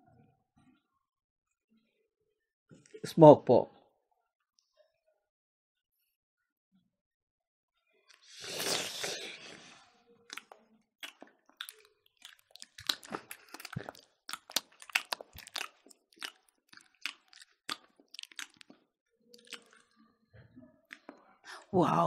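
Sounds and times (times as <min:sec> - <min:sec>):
people chewing ribs: 0:08.1 - 0:20.0, 0:20.9 - 0:21.7.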